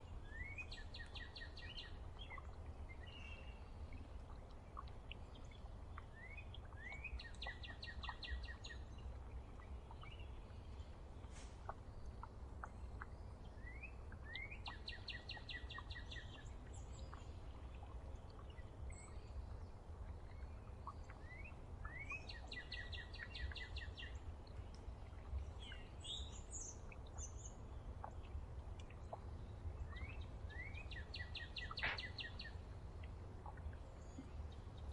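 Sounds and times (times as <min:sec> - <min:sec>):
songbird singing with trill: 0:00.0 - 0:03.6, 0:06.0 - 0:09.1, 0:13.0 - 0:17.3, 0:21.1 - 0:24.2, 0:25.6 - 0:28.2, 0:29.8 - 0:32.6
birds chirping: 0:29.0 - 0:34.9.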